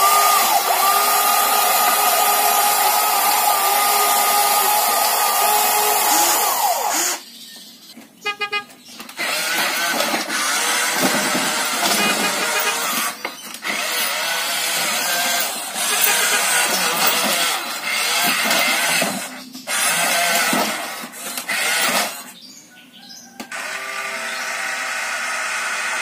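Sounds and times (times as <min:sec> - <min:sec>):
toy electric motor whirring: 0:00.0 - 0:07.3, 0:09.2 - 0:22.4, 0:23.4 - 0:26.0
toy horn honking: 0:08.2 - 0:08.8, 0:11.7 - 0:13.2, 0:15.8 - 0:17.0.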